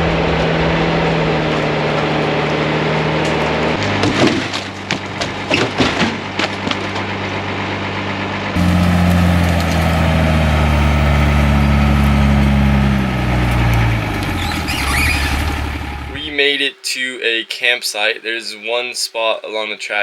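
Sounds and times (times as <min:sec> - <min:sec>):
diesel engine drone: 0:00.0 - 0:16.4
branches cracking against truck: 0:03.0 - 0:07.3, 0:08.6 - 0:16.1.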